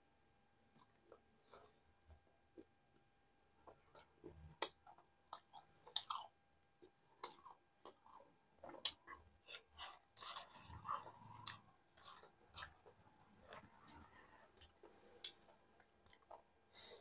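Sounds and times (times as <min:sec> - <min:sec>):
wet chewing with mouth clicks: 0:03.6 - 0:16.5.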